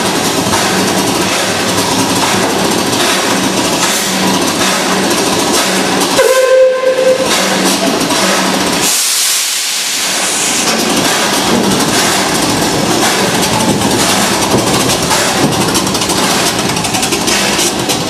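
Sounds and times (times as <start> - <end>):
steam hissing: 5.6 - 18.0
steam locomotive whistle: 6.2 - 7.7.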